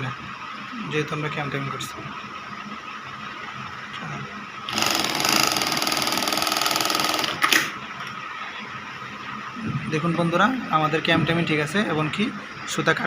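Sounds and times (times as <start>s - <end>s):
industrial sewing machine sewing: 4.7s - 7.7s.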